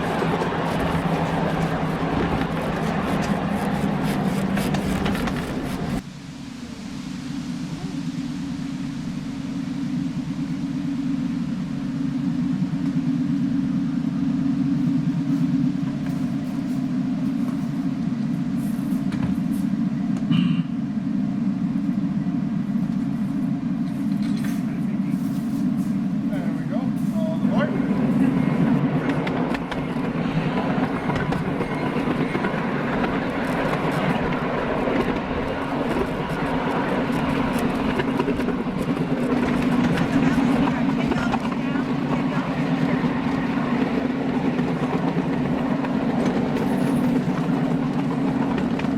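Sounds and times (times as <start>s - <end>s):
wheels clicking on rails: 0.0s - 6.0s, 22.8s - 48.9s
vehicle low rumble: 0.0s - 48.9s.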